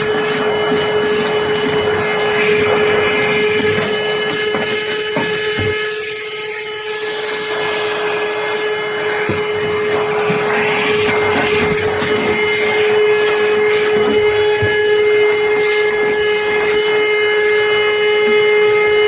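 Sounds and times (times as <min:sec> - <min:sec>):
vacuum cleaner motor whine: 0:00.0 - 0:19.0.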